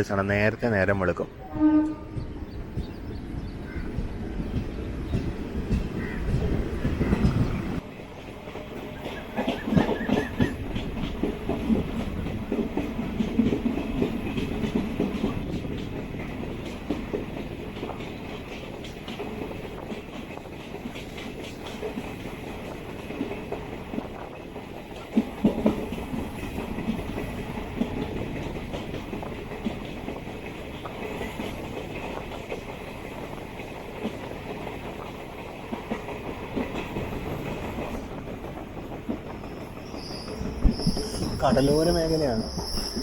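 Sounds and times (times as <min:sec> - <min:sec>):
train wheels clacking over rail joints: 0:01.9 - 0:43.0.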